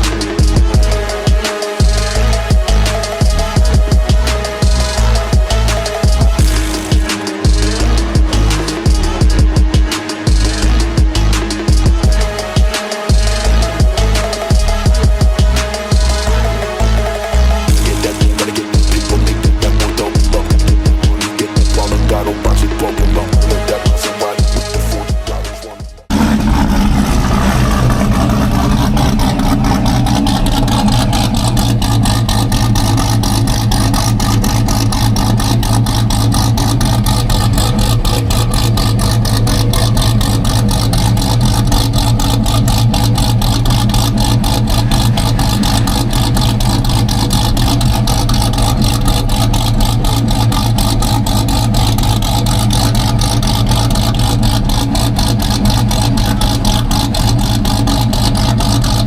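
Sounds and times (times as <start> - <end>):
car engine idling loudly: 0.0 - 59.0.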